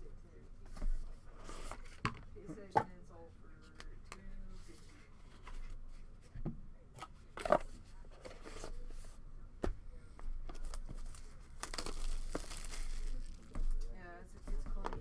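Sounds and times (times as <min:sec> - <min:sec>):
packaging rustling: 0:10.5 - 0:13.9.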